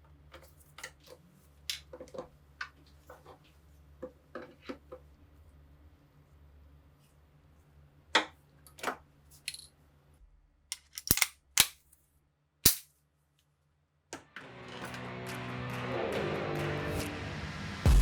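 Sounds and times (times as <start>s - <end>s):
metallic clicks of rifle parts: 9.4s - 9.7s, 10.7s - 12.0s, 12.7s - 12.9s
loud metallic snaps: 10.7s - 11.8s, 12.6s - 12.9s
music: 14.2s - 18.0s.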